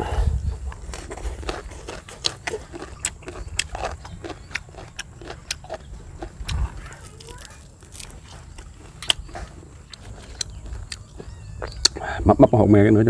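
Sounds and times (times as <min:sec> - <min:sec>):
chewing crispy fried fish: 0:00.7 - 0:12.0.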